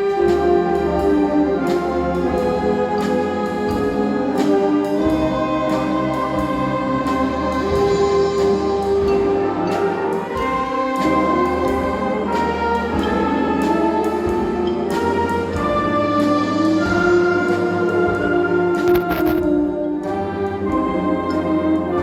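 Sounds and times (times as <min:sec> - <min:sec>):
percussion strikes: 0:00.0 - 0:21.6
concert band chords: 0:00.0 - 0:22.0.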